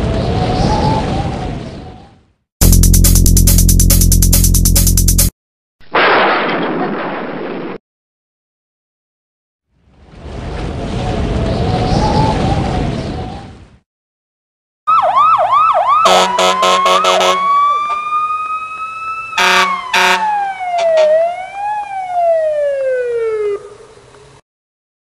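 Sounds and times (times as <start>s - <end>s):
emergency vehicle siren: 14.9s - 24.1s
vehicle horn blasts: 16.1s - 17.4s, 19.4s - 20.2s.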